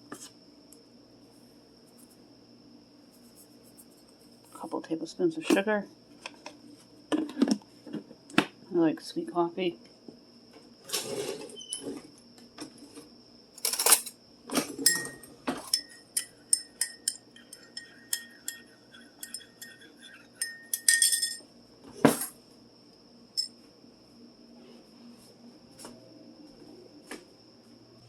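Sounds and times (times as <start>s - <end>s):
spoon clinking in a mug: 14.8s - 21.4s.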